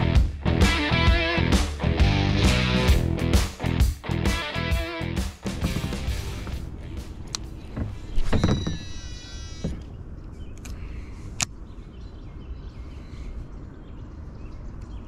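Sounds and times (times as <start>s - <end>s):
fishing tackle knocks: 5.5s - 6.6s
fishing reel whirring whine: 8.3s - 9.9s.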